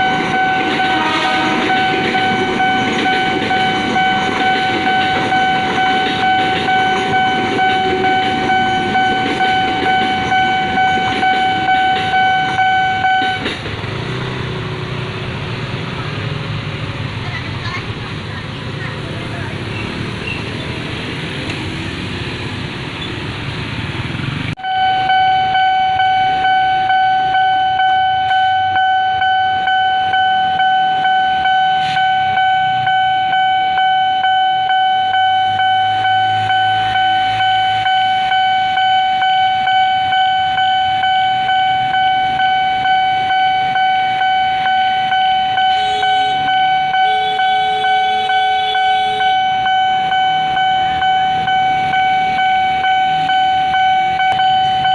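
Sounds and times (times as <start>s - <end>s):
level crossing alarm tone: 0.0s - 13.5s, 24.6s - 54.9s
lower alarm tone: 0.0s - 13.5s, 24.6s - 54.9s.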